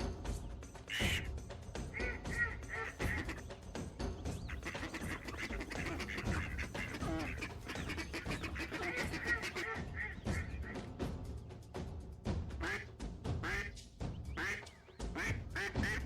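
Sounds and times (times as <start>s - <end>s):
animal calls: 1.9s - 3.7s, 4.3s - 10.9s.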